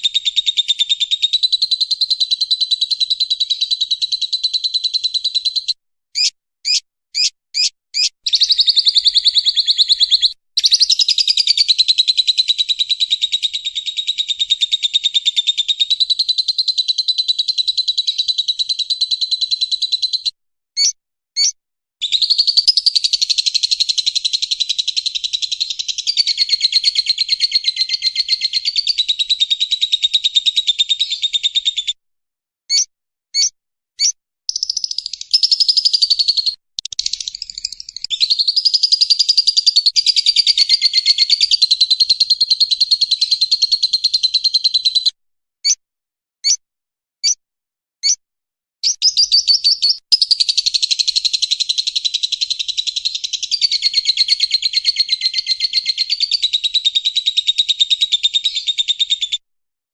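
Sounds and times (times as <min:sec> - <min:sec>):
lovebird chattering trill: 0:00.0 - 0:20.0, 0:20.8 - 0:31.8, 0:32.7 - 0:43.6, 0:48.8 - 0:56.5
lovebird short chirps: 0:06.2 - 0:11.2, 0:20.8 - 0:22.9, 0:32.7 - 0:36.1, 0:36.8 - 0:40.0, 0:48.8 - 0:50.0.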